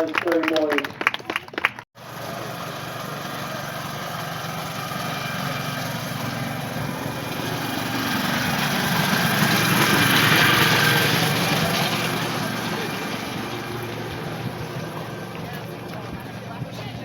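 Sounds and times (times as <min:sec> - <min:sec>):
engine running: 0:02.0 - 0:17.0.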